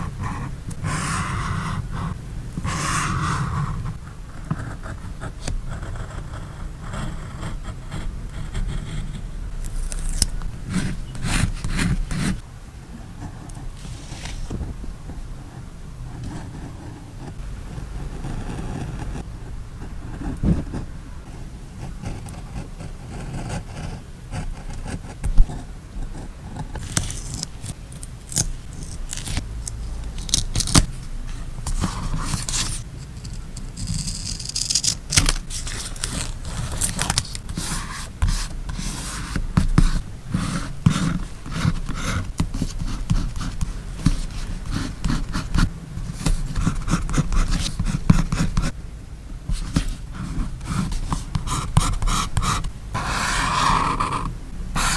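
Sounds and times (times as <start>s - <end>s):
paper being handled and scraped: 9.6s - 12.4s, 13.8s - 14.7s, 26.8s - 48.7s, 49.5s - 54.9s
scissors snipping paper: 9.6s - 12.4s, 26.8s - 30.9s, 33.8s - 38.0s.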